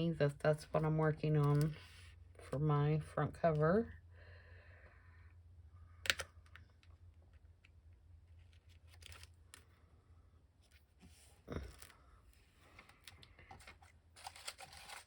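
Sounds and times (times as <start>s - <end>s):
paper rustling: 10.7s - 15.0s.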